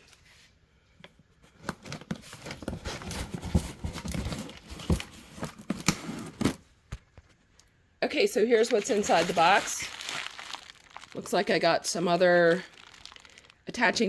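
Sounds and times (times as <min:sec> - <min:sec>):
packaging rustling: 0:01.8 - 0:06.5, 0:08.5 - 0:14.0.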